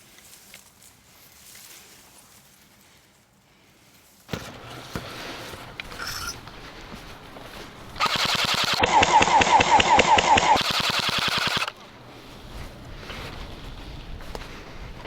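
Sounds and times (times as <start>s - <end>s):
airsoft gun firing full auto: 8.0s - 11.8s.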